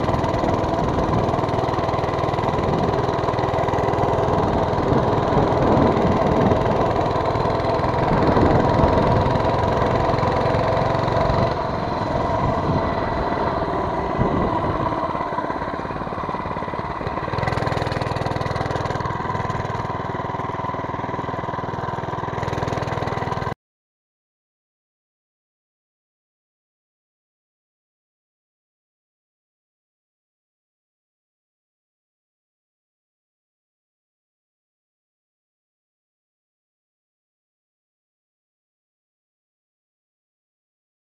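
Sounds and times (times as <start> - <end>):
small engine running: 0.0 - 23.6.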